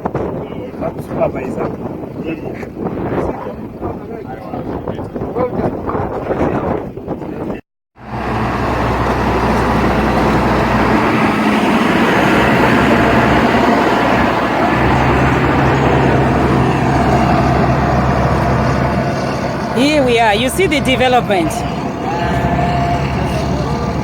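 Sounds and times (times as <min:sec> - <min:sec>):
road and tyre noise: 0:08.0 - 0:24.0
vehicle engine hum: 0:08.0 - 0:24.0.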